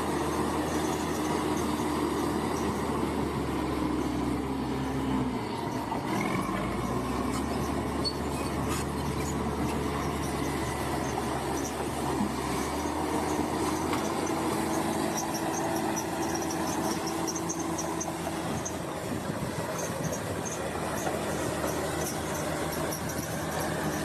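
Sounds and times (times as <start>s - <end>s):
crawler tracks squealing and clattering: 0.0s - 24.0s
diesel engine running: 0.0s - 24.0s.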